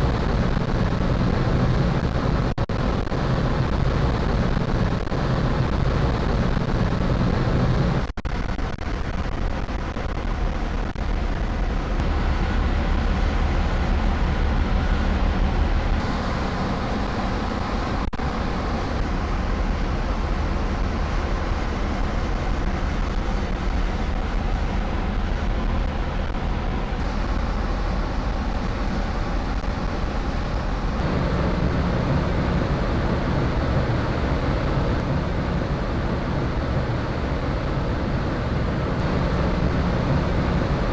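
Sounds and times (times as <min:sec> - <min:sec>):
wind: 0:09.0 - 0:40.9
ship engines rumbling: 0:26.2 - 0:40.9.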